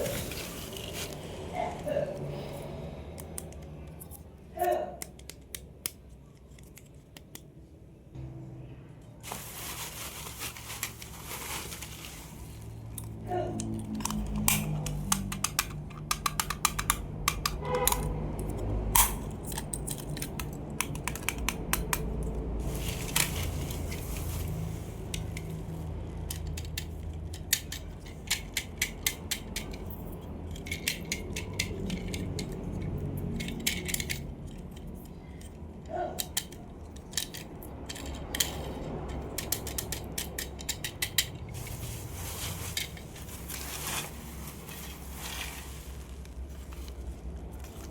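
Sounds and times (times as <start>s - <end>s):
toy cars clicking and tapping: 3.1s - 7.5s, 12.9s - 24.3s, 25.1s - 41.6s.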